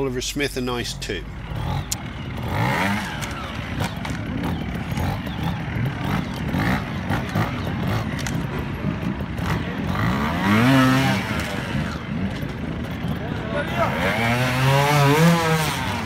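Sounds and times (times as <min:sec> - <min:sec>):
motorcycle engine revving: 0:00.9 - 0:16.0.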